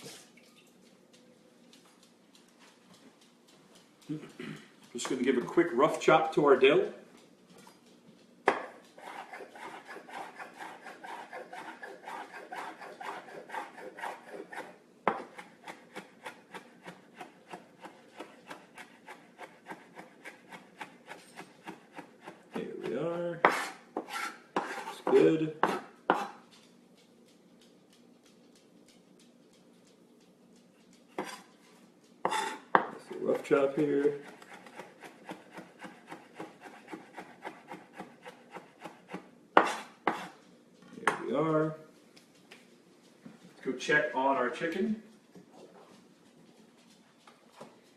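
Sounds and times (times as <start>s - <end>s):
knife chopping on cutting board: 8.5s - 26.4s, 31.2s - 31.4s, 32.2s - 40.4s.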